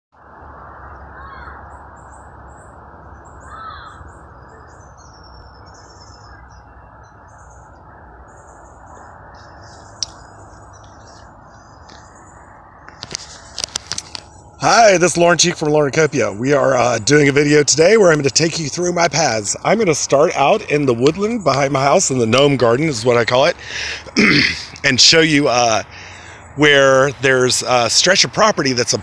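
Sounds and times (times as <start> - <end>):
loud bird calls: 0.8 - 22.0, 23.4 - 27.8
birds chirping: 0.8 - 29.0
low background hiss: 13.3 - 29.0.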